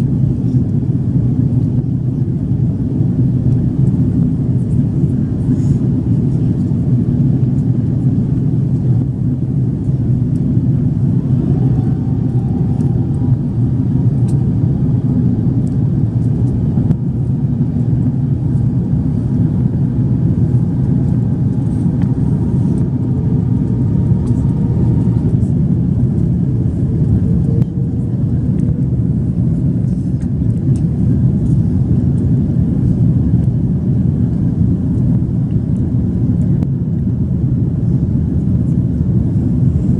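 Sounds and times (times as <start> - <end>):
airliner cabin rumble: 0.0 - 39.9
faint steady tones: 9.2 - 29.0.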